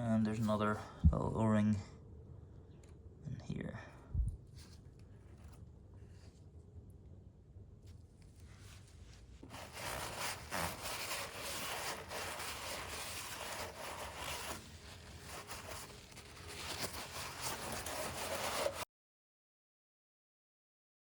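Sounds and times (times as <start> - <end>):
hands rustling and scraping parts: 8.2 - 18.8.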